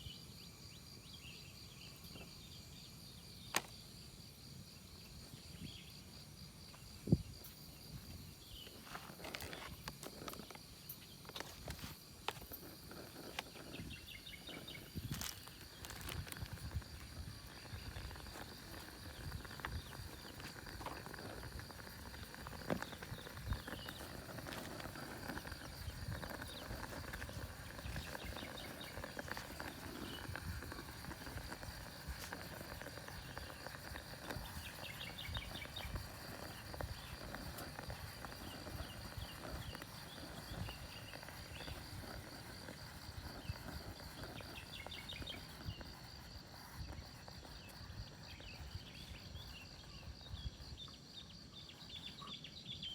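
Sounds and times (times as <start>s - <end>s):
high insect trill: 0.0s - 52.9s
wind buffeting microphone: 12.7s - 50.9s.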